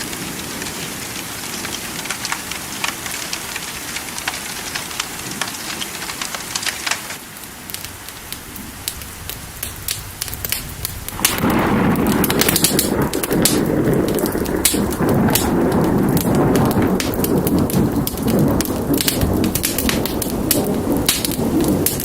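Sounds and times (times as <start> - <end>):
sharp crackling pops: 0.0 - 22.0
steady rain: 0.0 - 22.0
thunder rumbling: 7.7 - 22.0.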